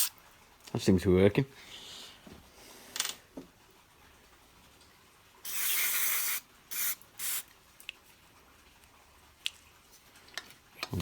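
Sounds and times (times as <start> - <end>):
aerosol spray hissing: 5.5 - 7.4.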